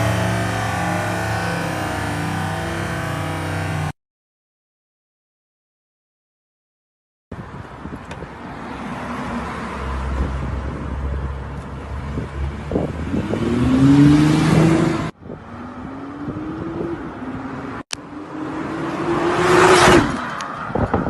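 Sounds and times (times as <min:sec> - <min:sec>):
second engine rising in pitch: 0:00.0 - 0:03.9
vehicle engine accelerating: 0:00.0 - 0:04.0, 0:12.0 - 0:20.5.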